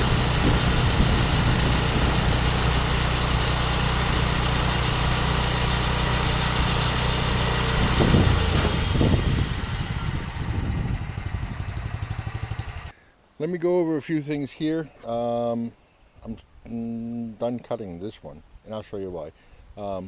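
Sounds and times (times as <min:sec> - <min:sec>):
engine idling: 0:00.0 - 0:12.9.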